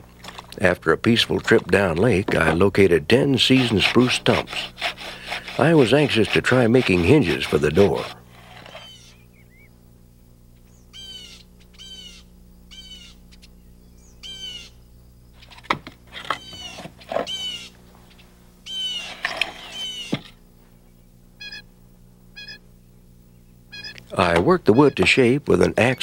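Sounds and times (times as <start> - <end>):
steady low hum: 0.0 - 26.0
bird calling: 7.8 - 9.8, 10.5 - 26.0.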